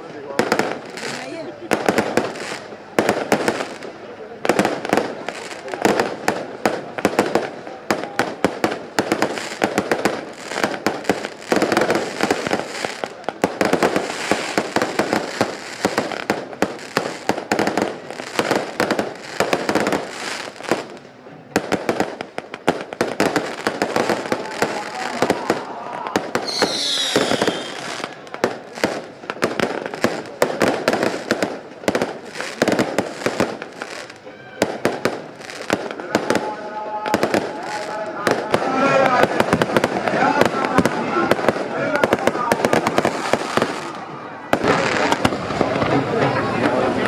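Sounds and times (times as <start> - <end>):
firecrackers cracking: 0.0 - 47.0
falling whistle: 26.4 - 28.0.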